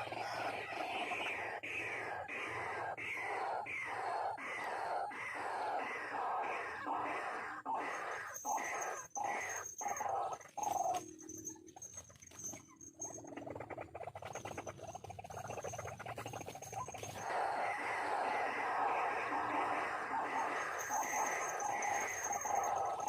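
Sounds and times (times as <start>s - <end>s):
rough rapid rattling call: 2.5s - 11.1s, 12.6s - 23.0s
waterhen croaking call: 17.1s - 23.0s.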